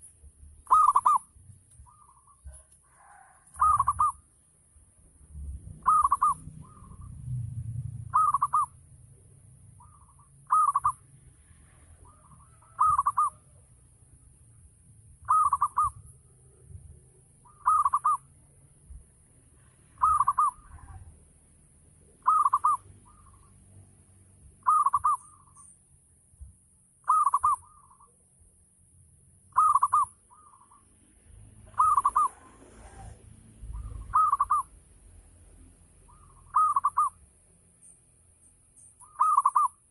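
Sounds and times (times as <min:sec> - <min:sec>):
dove cooing: 0:00.6 - 0:04.3, 0:05.8 - 0:07.3, 0:07.9 - 0:08.8, 0:09.8 - 0:11.0, 0:11.7 - 0:13.6, 0:15.2 - 0:16.7, 0:17.4 - 0:18.3, 0:20.0 - 0:21.2, 0:22.2 - 0:23.5, 0:24.6 - 0:25.5, 0:27.0 - 0:28.1, 0:29.5 - 0:30.8, 0:31.6 - 0:34.8, 0:36.1 - 0:37.2, 0:39.0 - 0:39.9.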